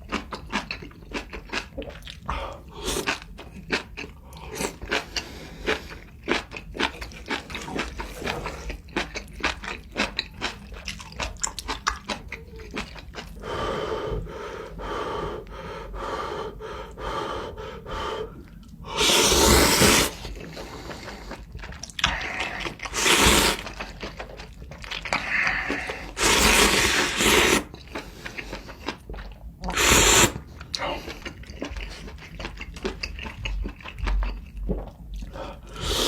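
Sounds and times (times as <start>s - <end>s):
person chewing wetly: 0.0s - 13.5s, 19.6s - 36.0s
loud slurps: 19.0s - 20.6s, 22.0s - 23.8s, 25.2s - 27.7s, 29.7s - 30.4s, 35.7s - 36.0s.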